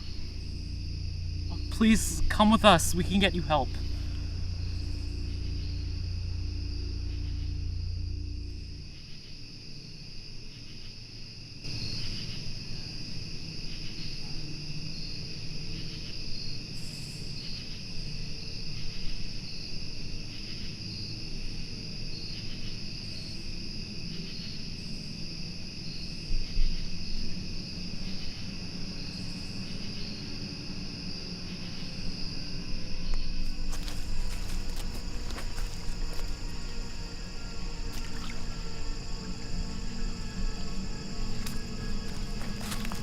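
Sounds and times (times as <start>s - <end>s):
low rumble: 0.0s - 10.2s
insects chirping: 0.0s - 43.0s.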